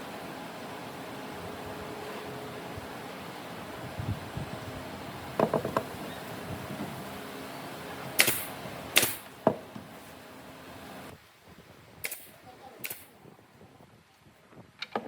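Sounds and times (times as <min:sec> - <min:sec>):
sharp knocks: 0:05.4 - 0:05.9.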